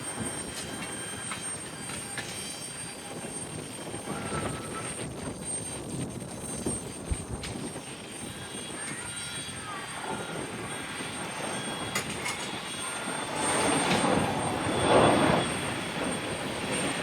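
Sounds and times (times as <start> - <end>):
jet aircraft rushing: 0.0 - 17.0.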